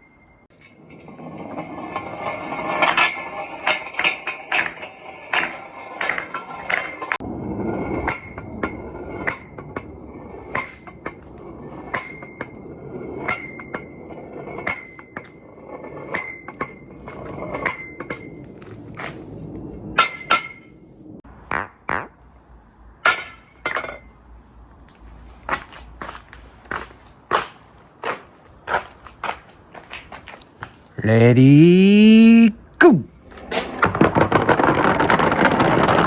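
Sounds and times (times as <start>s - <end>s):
marbles clacking on the course: 33.4s - 36.0s
marbles rolling down a track: 33.4s - 36.0s.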